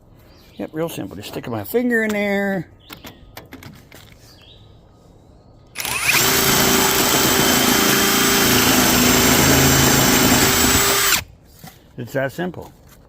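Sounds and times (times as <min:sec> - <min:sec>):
electric drill cutting wood: 0:05.8 - 0:11.2.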